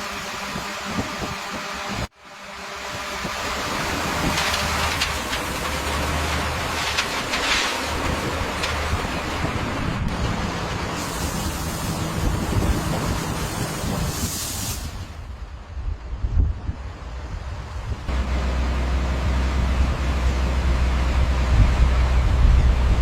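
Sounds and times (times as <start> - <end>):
wind-like hiss: 0.0 - 18.2
construction machinery rumble: 0.0 - 23.0.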